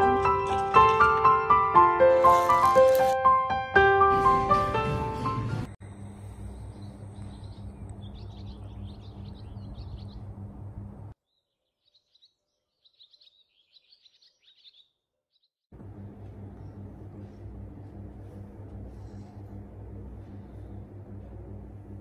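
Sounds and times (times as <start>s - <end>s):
small birds chirping: 6.4s - 10.6s, 11.2s - 15.7s
low steady hum: 15.7s - 22.0s.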